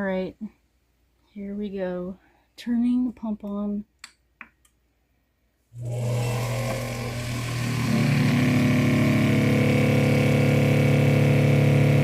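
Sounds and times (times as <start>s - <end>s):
water pump motor humming: 5.8s - 12.0s.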